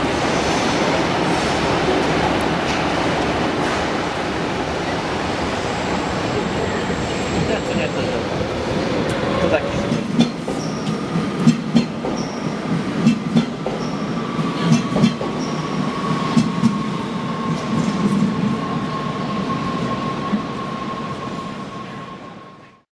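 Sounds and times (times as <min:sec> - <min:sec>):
train high whine: 0:00.0 - 0:22.8
train wheels clacking: 0:09.1 - 0:16.9.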